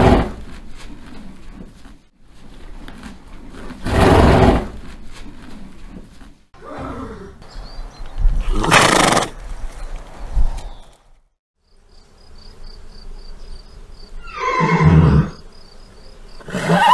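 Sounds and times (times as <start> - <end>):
horse neighing: 8.4 - 9.3, 14.2 - 15.4, 16.4 - 16.9.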